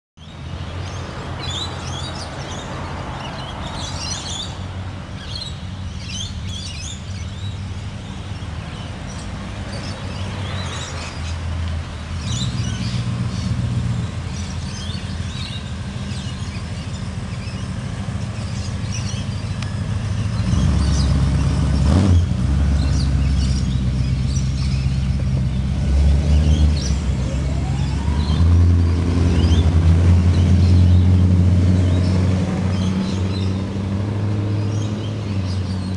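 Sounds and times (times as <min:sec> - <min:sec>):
birds chirping: 0:00.2 - 0:35.9
car engines rumbling: 0:00.2 - 0:35.9
engine revving: 0:18.4 - 0:35.9.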